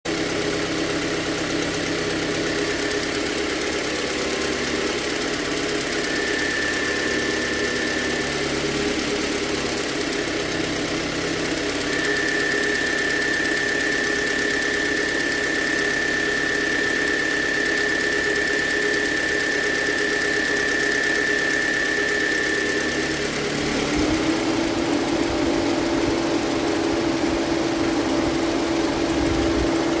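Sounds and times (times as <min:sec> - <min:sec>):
car engine running: 0:00.1 - 0:30.0
high thin whirring whine: 0:05.9 - 0:09.9.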